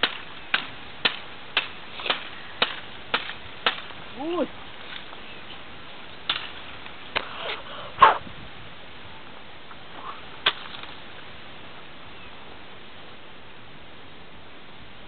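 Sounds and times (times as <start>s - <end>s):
axe chopping firewood: 0.0s - 4.0s, 6.3s - 7.3s, 10.4s - 10.9s
steady background hiss: 0.0s - 15.0s.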